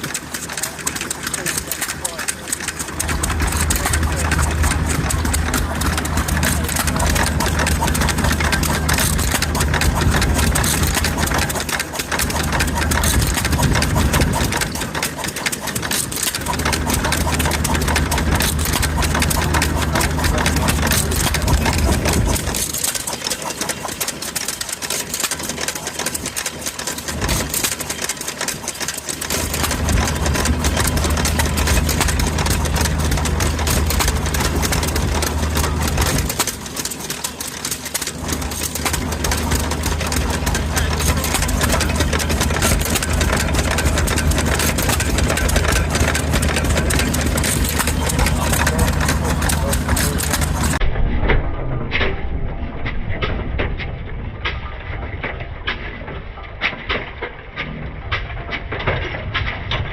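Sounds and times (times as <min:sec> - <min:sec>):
single-cylinder engine firing: 0:00.0 - 0:50.8
fast clatter: 0:00.0 - 0:59.9.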